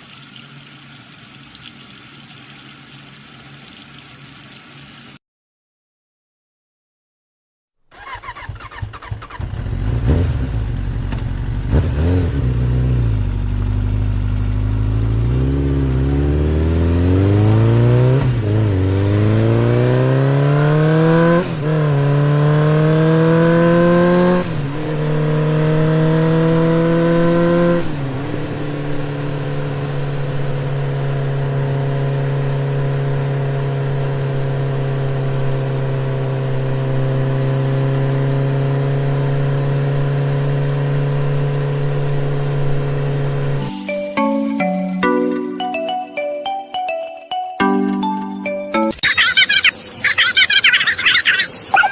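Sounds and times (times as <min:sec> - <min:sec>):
vehicle engine accelerating: 0:07.9 - 0:43.7.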